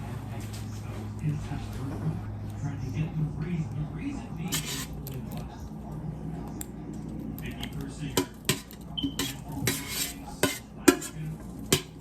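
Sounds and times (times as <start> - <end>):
utensil scraping a pan: 4.4 - 5.2, 8.1 - 12.0.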